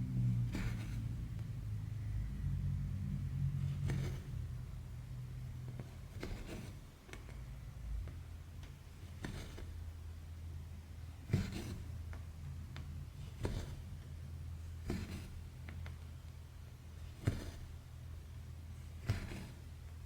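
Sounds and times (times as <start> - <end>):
steady low hum: 0.0 - 20.0
needle clicking through fabric: 5.6 - 7.4, 8.0 - 9.8, 19.0 - 19.7.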